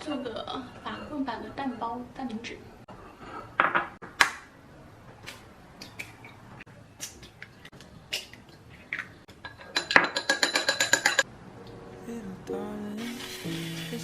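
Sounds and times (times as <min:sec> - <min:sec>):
kitchen clicks and taps: 0:08.9 - 0:11.2.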